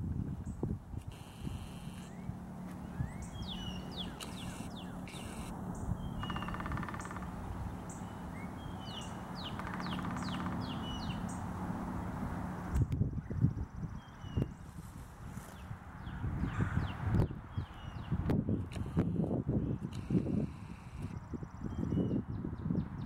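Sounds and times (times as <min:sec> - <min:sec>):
low hum: 0:00.0 - 0:14.1
songbirds chirping and trilling: 0:00.4 - 0:23.0.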